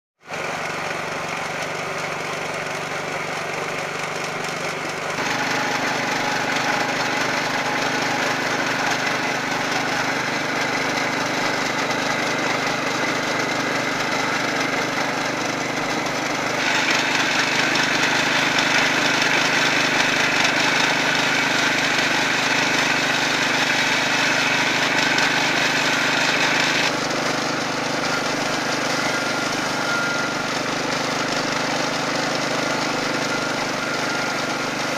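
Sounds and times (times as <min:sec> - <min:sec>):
small engine running: 0:00.2 - 0:34.9
coconut grating rasp: 0:00.3 - 0:34.9.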